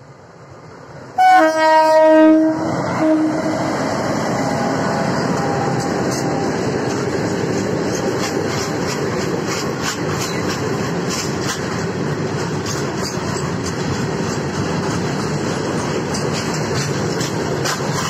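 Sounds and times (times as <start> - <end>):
freight wagons rumbling on rails: 1.2 - 18.0
wheels clicking over rail joints: 5.3 - 18.0.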